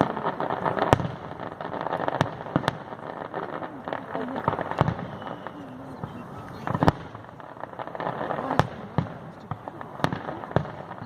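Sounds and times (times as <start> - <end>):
firework bangs: 0.0 - 11.0
firework pops and crackle: 0.0 - 11.0.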